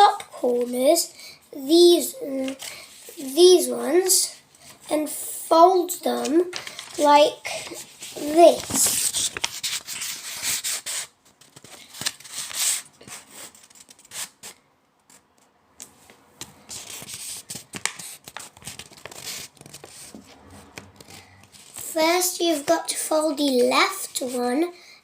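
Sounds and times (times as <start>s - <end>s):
paper being folded and creased: 2.3s - 3.4s, 6.0s - 14.5s, 16.6s - 22.7s, 23.3s - 24.6s.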